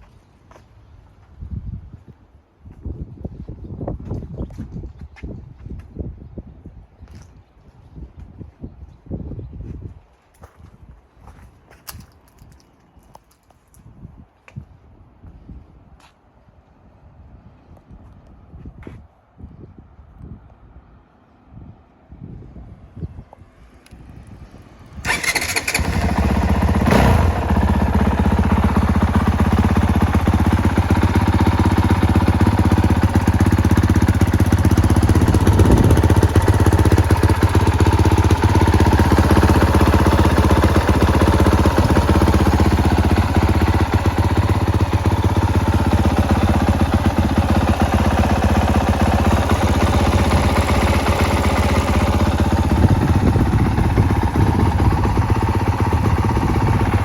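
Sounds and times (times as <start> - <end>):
motorcycle engine starting and idling: 24.3 - 57.0.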